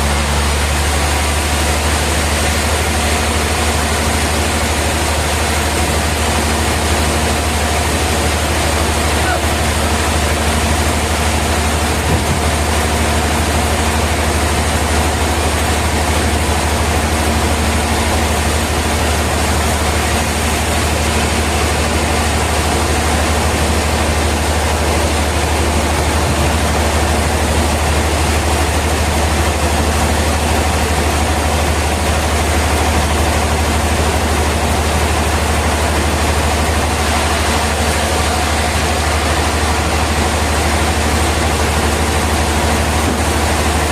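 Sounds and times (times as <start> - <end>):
sawmill machinery droning: 0.0 - 43.9.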